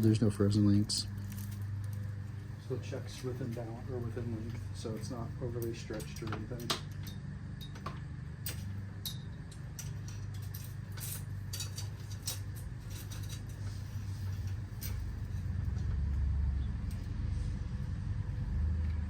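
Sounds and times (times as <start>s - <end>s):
steady low rumble: 0.0s - 19.0s
metallic clicks of bicycle tools: 5.6s - 15.9s.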